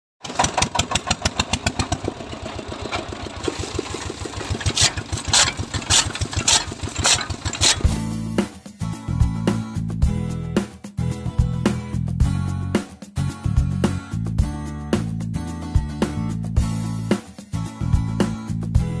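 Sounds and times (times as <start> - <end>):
engine chugging: 0.2 - 8.0
music: 7.8 - 19.0.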